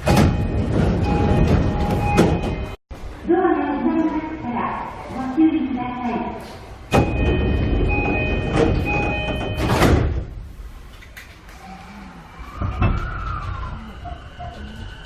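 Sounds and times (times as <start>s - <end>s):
train doors closing: 0.0s - 2.8s, 6.4s - 11.6s.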